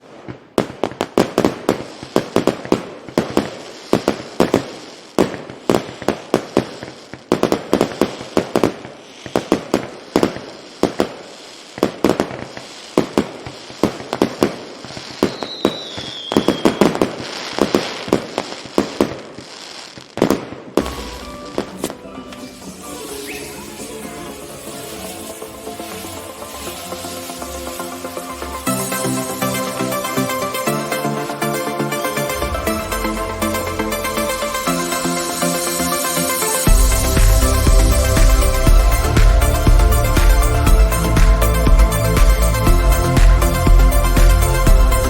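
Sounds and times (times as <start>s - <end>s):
fireworks bangs: 0.0s - 45.0s
falling whistle: 15.2s - 17.0s, 20.8s - 38.4s
music: 20.8s - 45.0s.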